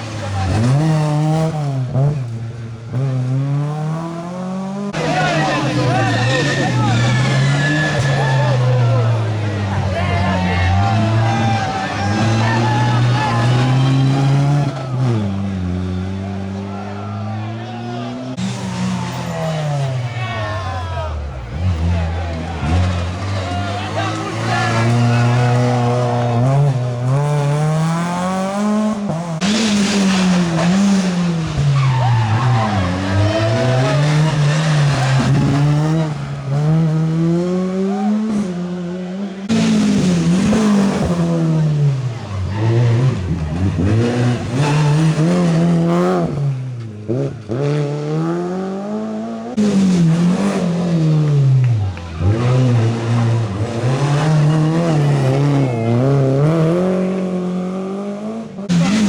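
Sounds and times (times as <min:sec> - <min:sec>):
rally car engines revving: 0:00.0 - 0:59.0
tyre squeal: 0:05.0 - 0:09.1.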